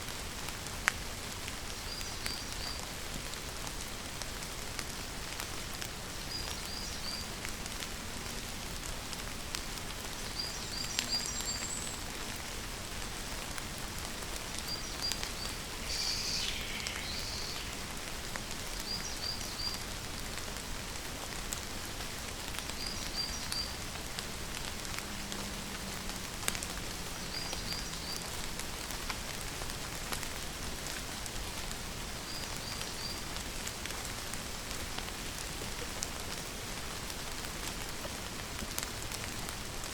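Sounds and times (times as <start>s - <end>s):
rain falling: 0.0s - 39.9s
bird chirping: 14.7s - 17.9s
bird falling call: 15.2s - 17.9s.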